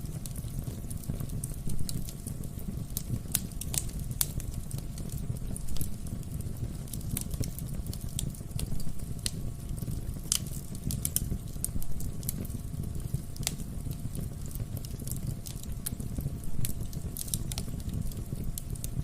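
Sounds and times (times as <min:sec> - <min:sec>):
logs crackling and popping: 0:00.0 - 0:19.0
wood fire rumbling: 0:00.0 - 0:19.0.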